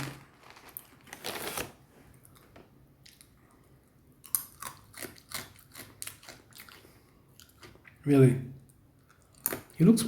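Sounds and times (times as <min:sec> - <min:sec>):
person chewing and crunching food: 0:02.2 - 0:08.0, 0:08.7 - 0:09.8.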